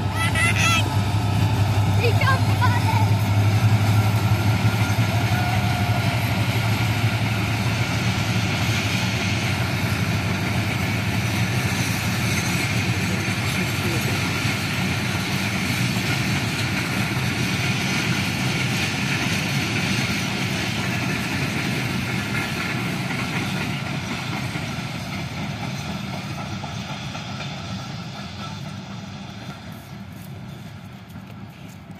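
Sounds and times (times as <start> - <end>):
passenger train rolling past: 0.0 - 31.9.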